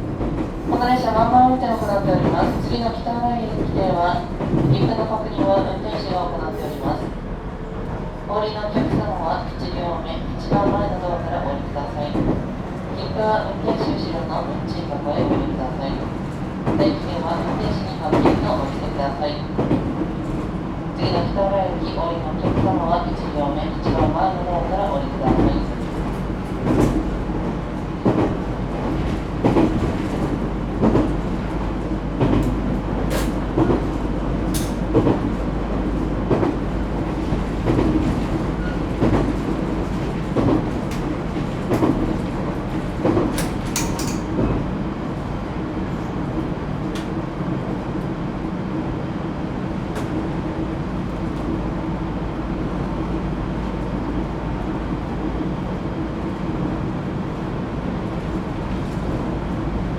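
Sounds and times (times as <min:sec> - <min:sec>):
train running rumble: 0:00.0 - 0:59.9.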